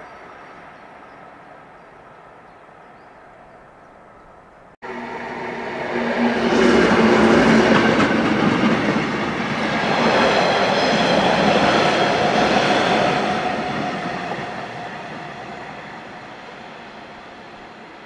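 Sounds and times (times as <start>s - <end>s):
train wheels rumbling and rattling: 6.0s - 17.9s.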